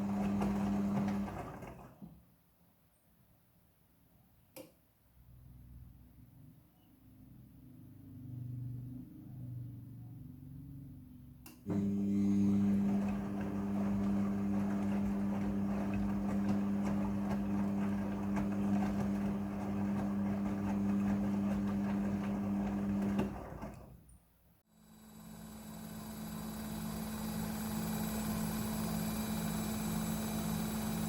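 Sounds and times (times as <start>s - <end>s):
washing machine motor hum: 0.0s - 2.2s, 11.6s - 24.1s, 24.7s - 31.0s.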